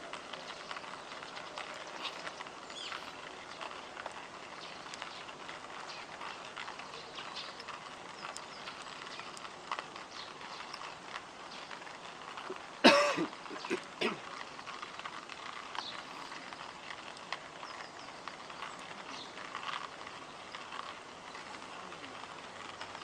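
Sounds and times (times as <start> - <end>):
campfire crackling: 0.0 - 23.0
faint bird chirps: 1.9 - 3.2.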